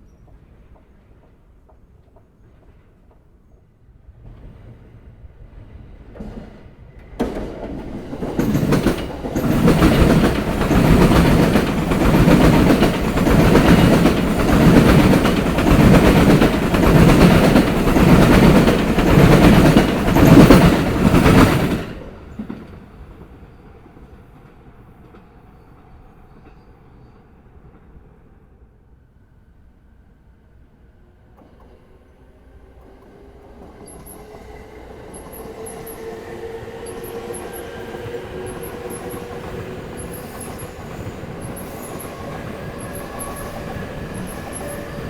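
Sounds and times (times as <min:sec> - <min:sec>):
train wheels clacking on rail joints: 0:06.1 - 0:25.4, 0:35.1 - 0:45.0.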